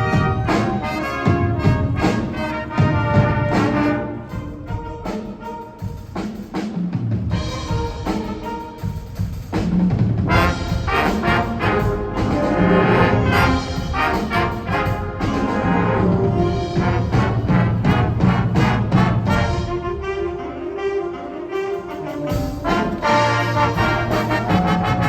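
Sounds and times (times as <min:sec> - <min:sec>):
wind ensemble with percussion playing: 0:00.0 - 0:25.0.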